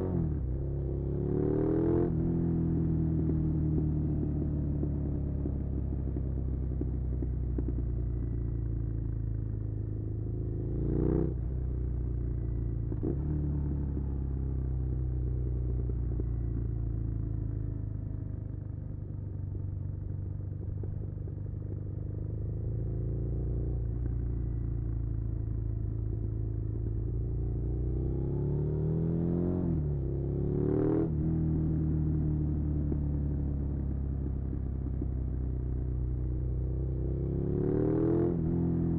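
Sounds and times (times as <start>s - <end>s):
motorcycle engine revving: 25.9s - 38.9s.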